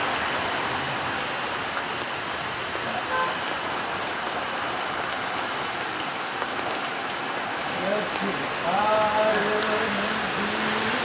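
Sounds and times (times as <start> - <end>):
steady rain hissing: 0.0 - 11.0.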